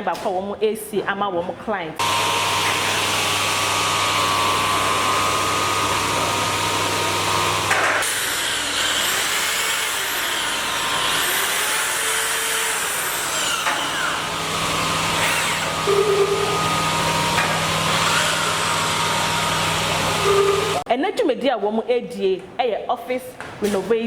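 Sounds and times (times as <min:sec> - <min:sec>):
power tools running: 0:02.0 - 0:20.8.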